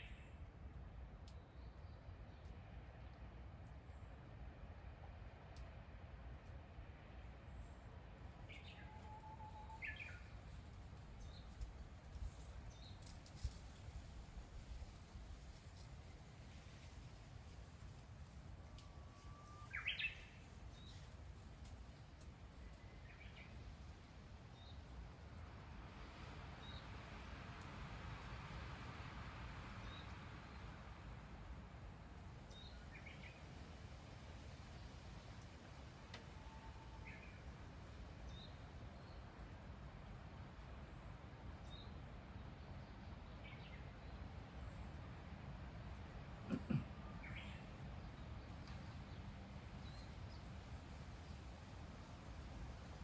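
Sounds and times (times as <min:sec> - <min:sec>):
low rural background rumble: 0:00.0 - 0:53.0
faint bird chirps: 0:18.8 - 0:21.0
low background hum: 0:29.6 - 0:52.6.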